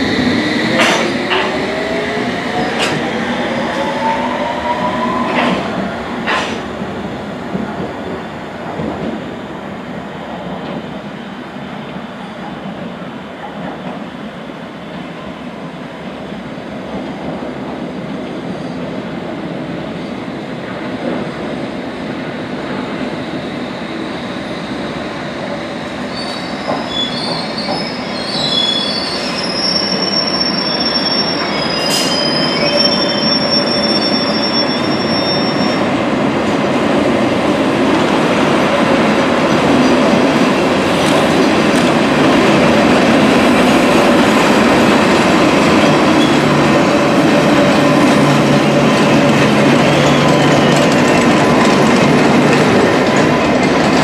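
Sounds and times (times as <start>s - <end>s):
train rumble and rail clatter: 0.0s - 54.0s
train wheels squealing: 26.0s - 36.0s, 45.7s - 46.5s, 49.8s - 51.8s.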